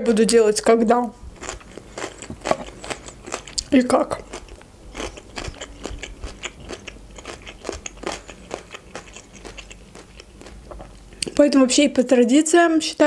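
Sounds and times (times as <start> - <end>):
chewing with mouth clicks: 1.4 - 11.4.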